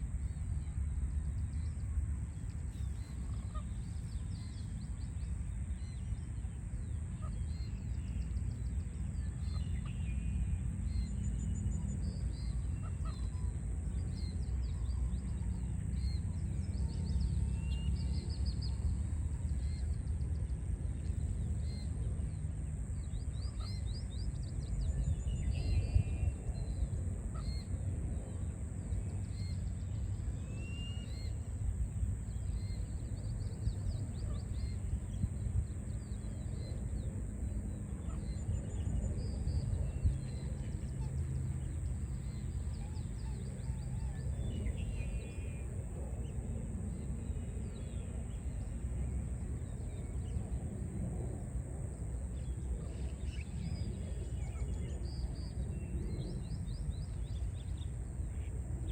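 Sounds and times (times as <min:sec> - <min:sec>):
songbirds chirping and trilling: 0:00.0 - 0:58.9.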